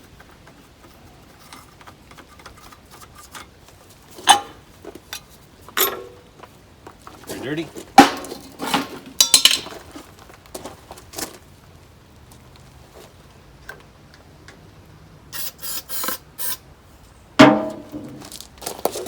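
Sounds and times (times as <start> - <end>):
loud metal clank: 8.0 - 9.7, 17.4 - 18.2
short hissing bursts: 15.3 - 16.7.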